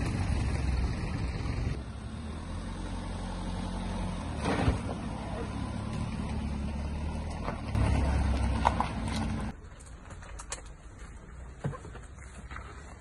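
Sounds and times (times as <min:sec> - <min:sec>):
car engine rumble passing: 0:00.0 - 0:09.6.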